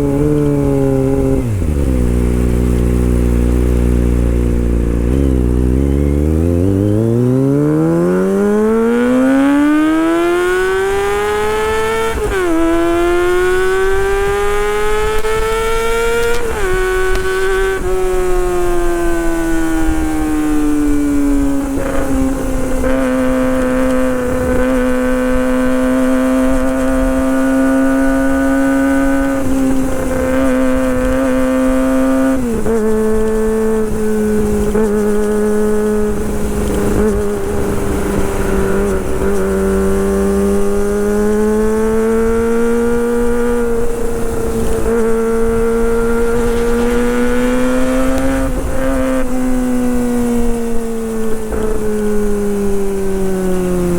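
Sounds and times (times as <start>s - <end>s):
motorcycle engine howling at high revs: 0.0s - 53.9s.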